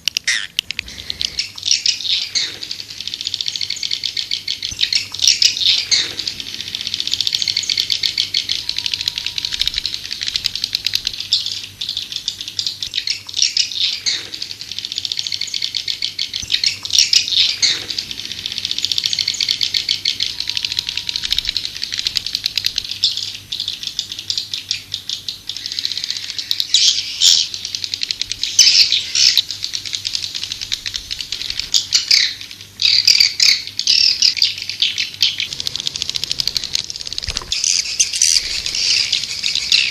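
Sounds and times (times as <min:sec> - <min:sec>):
swiftlets twittering: 0:00.0 - 0:23.8, 0:35.0 - 0:39.9.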